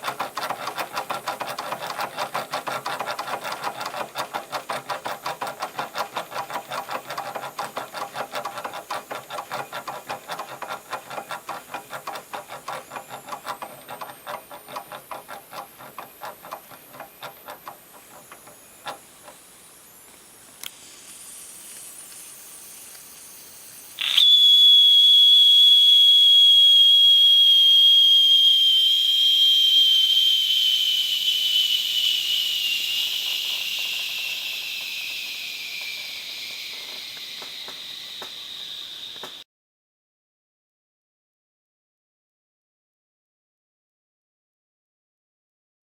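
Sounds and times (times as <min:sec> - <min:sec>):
toy steam engine running: 0:00.0 - 0:19.5, 0:27.4 - 0:39.4
faint hiss of steam: 0:19.4 - 0:24.8, 0:28.5 - 0:39.4
steam whistle blowing: 0:24.0 - 0:39.4.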